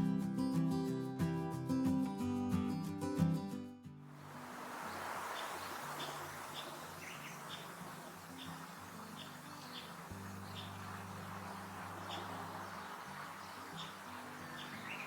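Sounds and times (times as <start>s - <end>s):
background hiss: 4.1s - 15.0s
songbird chirping: 4.2s - 15.0s.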